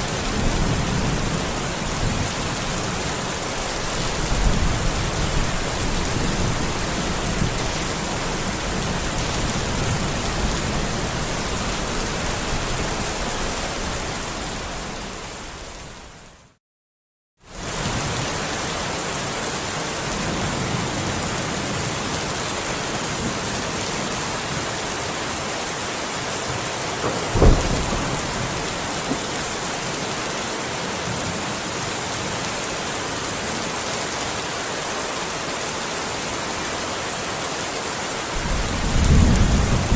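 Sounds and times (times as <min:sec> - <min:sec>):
heavy rain: 0:00.0 - 0:16.6, 0:17.4 - 0:39.9
sharp thunderclap: 0:27.0 - 0:29.5, 0:38.4 - 0:39.9
low thunder rumbling: 0:27.0 - 0:29.6, 0:38.4 - 0:39.9.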